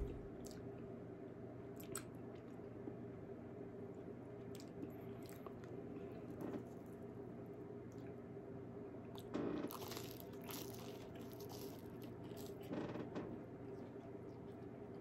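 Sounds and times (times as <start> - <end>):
man biting and chewing food: 9.2 - 12.7.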